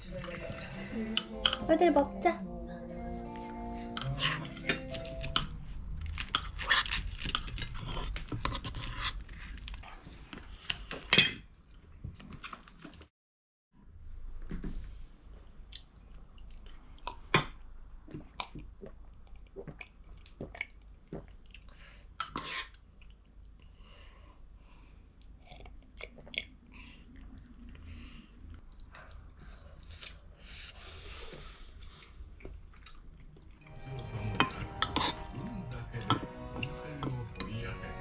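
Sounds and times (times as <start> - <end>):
chopsticks tapping tableware: 1.2 - 1.7, 4.0 - 5.5
chewing and eating: 4.0 - 13.1, 15.6 - 23.8, 25.0 - 30.4, 31.1 - 33.6.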